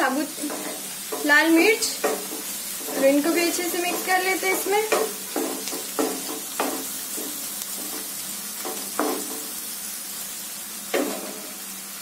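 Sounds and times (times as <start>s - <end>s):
vegetables sizzling in hot oil: 0.0s - 12.0s
wooden spatula scraping pan: 0.3s - 9.5s.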